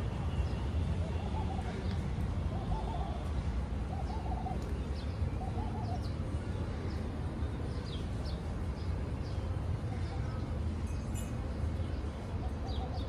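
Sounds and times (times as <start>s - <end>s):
small birds chirping: 0.3s - 13.0s
dove cooing: 3.9s - 4.6s.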